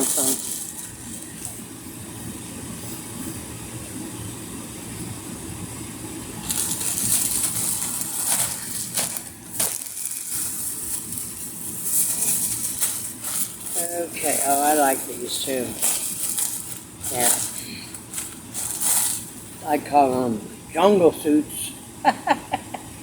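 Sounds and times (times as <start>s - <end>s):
plastic packaging and fabric rustling: 0.0s - 1.8s, 6.4s - 20.2s.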